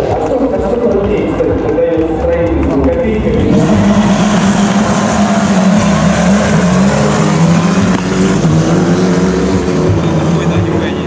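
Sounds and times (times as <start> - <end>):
loud car engine at held revs: 3.1 - 11.0.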